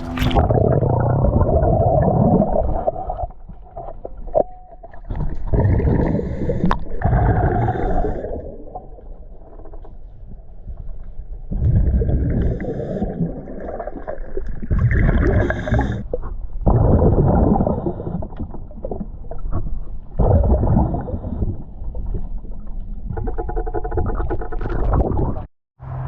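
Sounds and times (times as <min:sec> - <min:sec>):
gurgling exhaust bubbles: 0:00.0 - 0:03.4, 0:05.0 - 0:09.7, 0:11.5 - 0:25.5
diver breathing through a regulator: 0:05.5 - 0:08.7, 0:11.9 - 0:13.6, 0:14.9 - 0:16.3, 0:17.1 - 0:18.6, 0:20.4 - 0:22.0.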